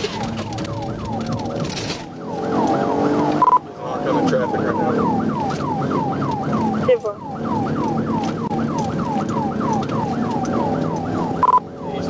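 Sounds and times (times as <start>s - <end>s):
police siren yelping: 0.0s - 12.0s.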